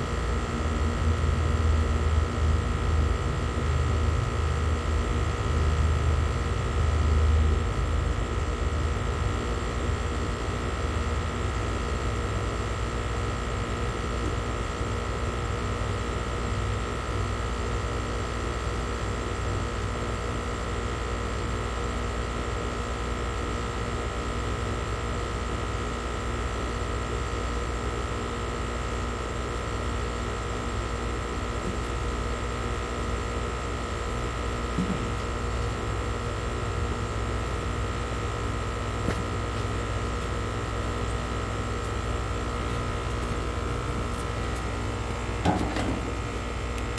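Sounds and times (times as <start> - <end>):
air conditioner humming: 25.7 - 46.9.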